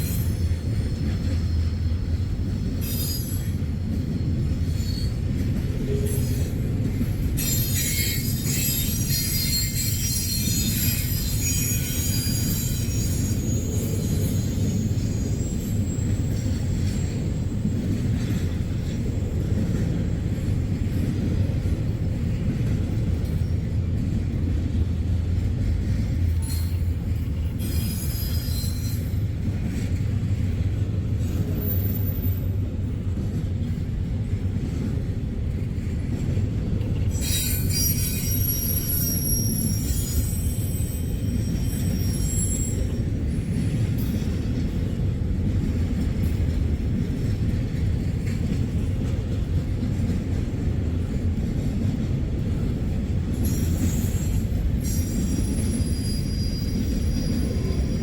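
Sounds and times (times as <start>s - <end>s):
freight train rumbling on rails: 0.0s - 58.0s
high-pitched wheel squeal: 2.8s - 3.6s, 7.4s - 17.1s, 27.6s - 29.2s, 37.1s - 43.1s, 53.4s - 58.0s.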